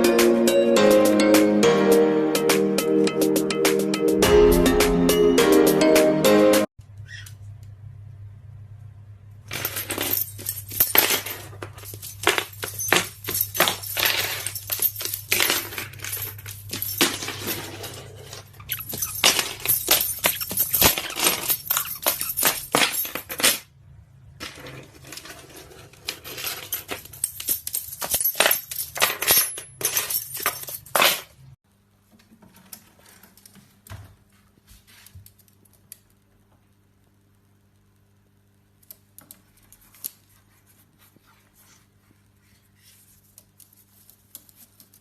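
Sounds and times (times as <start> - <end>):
small hard objects clinking: 9.5 - 23.6.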